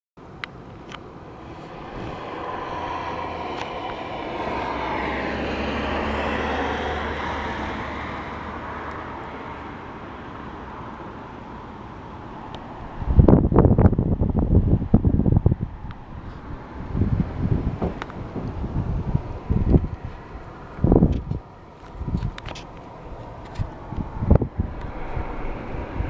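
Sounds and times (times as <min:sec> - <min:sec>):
airplane passing overhead: 0:00.2 - 0:26.0.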